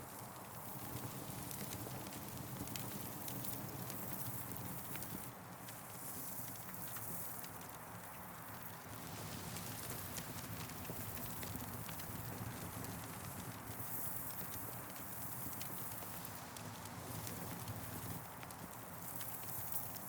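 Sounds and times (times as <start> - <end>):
campfire crackling: 8.4 - 20.0.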